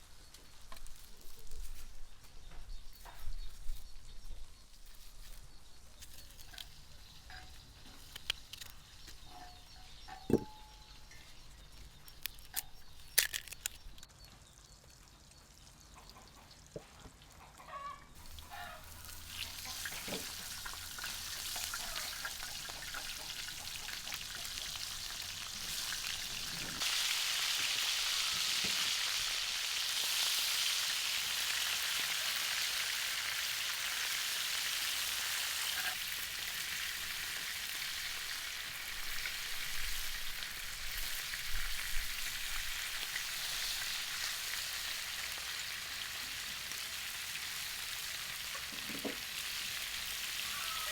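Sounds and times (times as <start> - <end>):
food sizzling in a pan: 18.2 - 50.9.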